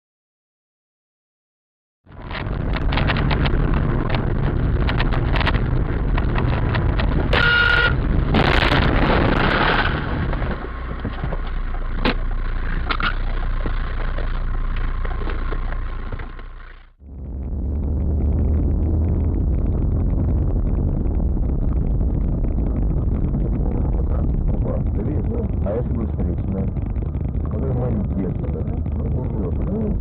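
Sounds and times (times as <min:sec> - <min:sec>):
car engine and road noise: 0:02.1 - 0:30.0
loud noisy burst: 0:02.1 - 0:30.0
scattered clicks: 0:02.2 - 0:16.9, 0:19.1 - 0:30.0
car horn blast: 0:07.3 - 0:08.0.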